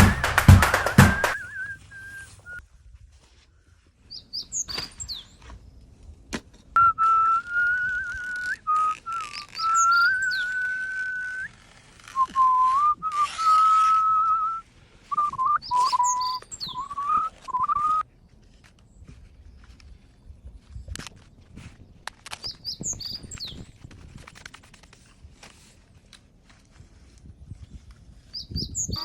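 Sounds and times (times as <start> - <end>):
warbling whistle: 6.8 - 11.5, 12.2 - 18.0
birds chirping: 9.2 - 10.8, 15.1 - 18.0.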